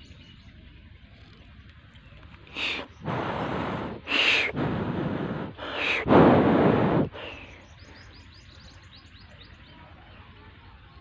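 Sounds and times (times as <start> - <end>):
harsh bird calls: 2.0 - 9.6
rapid high bird chirping: 2.5 - 4.6.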